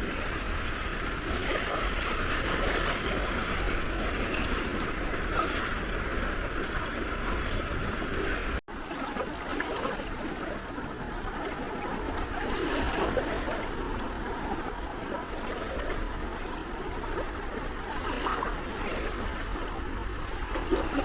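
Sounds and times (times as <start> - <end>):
sea waves washing on shore: 0.0 - 21.0.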